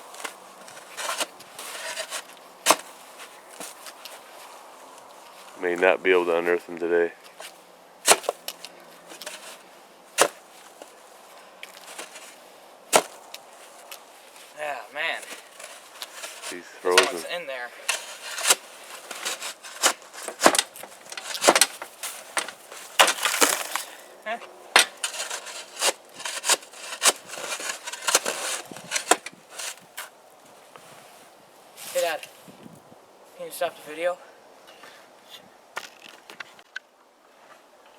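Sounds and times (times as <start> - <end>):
shovel chopping ice: 0.2 - 2.9, 8.0 - 8.5, 10.2 - 10.4, 12.9 - 13.2, 15.2 - 23.9, 24.8 - 29.9
small clicks and scrapes: 0.2 - 4.2, 7.3 - 9.6, 11.6 - 12.4, 15.2 - 23.9, 24.8 - 30.1.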